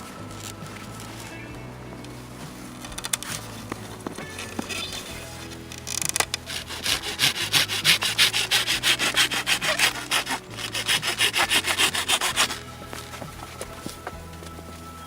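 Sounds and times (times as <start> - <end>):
hand saw cutting wood: 5.8 - 12.7.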